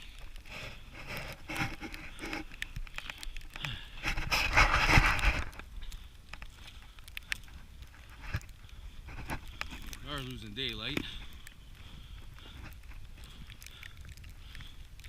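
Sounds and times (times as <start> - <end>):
wind noise on microphone: 4.0 - 5.8.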